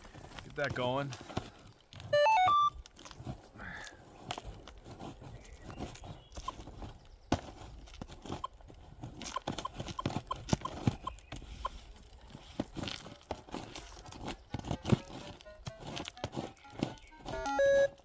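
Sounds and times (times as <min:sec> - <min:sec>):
knocks and clatter of handling gear: 0:00.0 - 0:18.0
metal detector beeps: 0:02.1 - 0:02.8, 0:09.3 - 0:11.8, 0:17.3 - 0:18.0.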